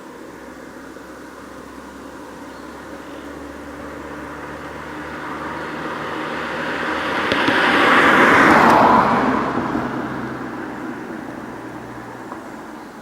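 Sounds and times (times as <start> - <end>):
car engine driving past: 2.8 - 13.0.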